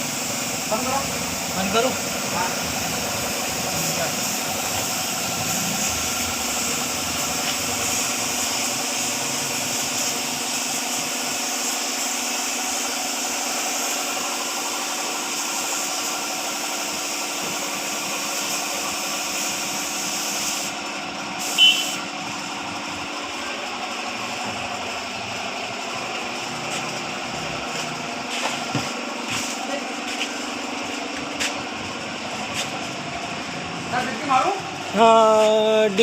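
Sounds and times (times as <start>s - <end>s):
engine idling: 0.0s - 36.0s
short sharp sound with high tone: 21.5s - 22.0s.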